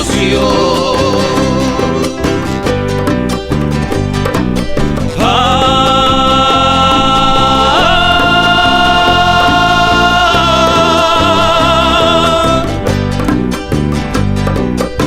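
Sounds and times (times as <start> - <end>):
bass: 0.0 - 15.0
strummed strings: 0.0 - 15.0
high held melodic note: 3.8 - 13.2.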